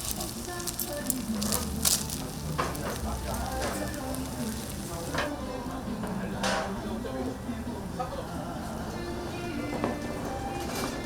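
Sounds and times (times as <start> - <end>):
crackles: 0.0 - 5.3
food sizzling: 0.0 - 5.4.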